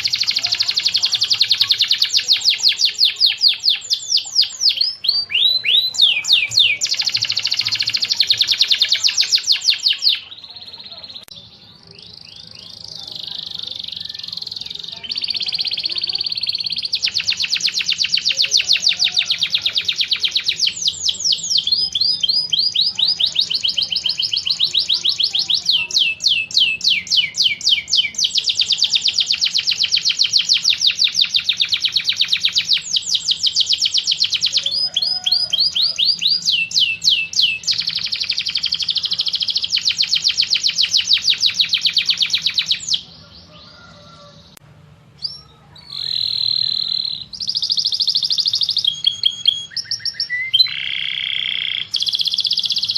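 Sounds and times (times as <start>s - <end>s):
steady bird whistle: 0.0s - 43.9s, 45.2s - 52.9s
songbird fast high trills: 45.2s - 52.9s.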